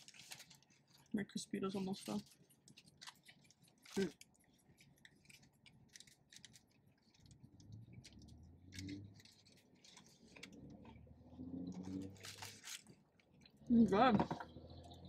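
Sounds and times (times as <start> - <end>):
people chewing food: 1.9 - 13.7.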